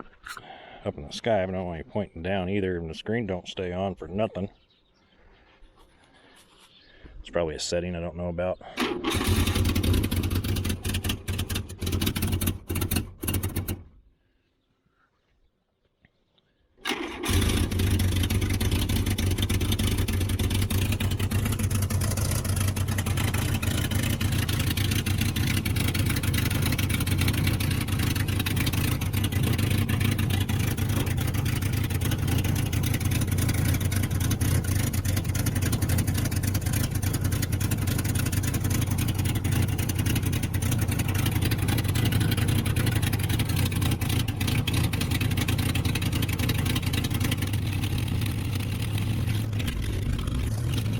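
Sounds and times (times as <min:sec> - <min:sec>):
race car engine running: 0:08.8 - 0:13.9, 0:16.9 - 0:50.9.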